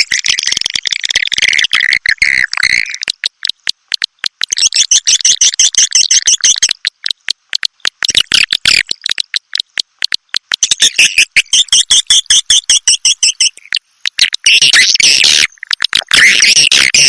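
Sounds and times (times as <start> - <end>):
swiftlet calls chattering: 10.6 - 15.5.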